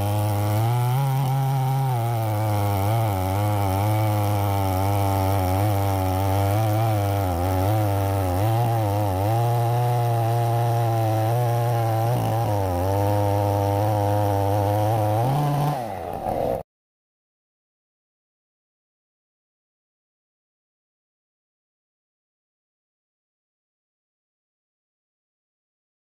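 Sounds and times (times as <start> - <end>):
chainsaw cutting log: 0.0 - 16.6.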